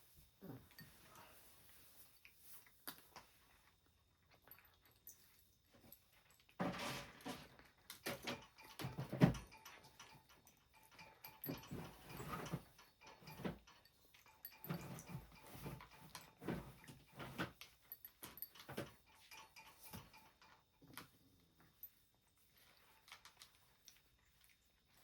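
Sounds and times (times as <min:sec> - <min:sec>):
cats crunching dry food: 0:22.5 - 0:25.0.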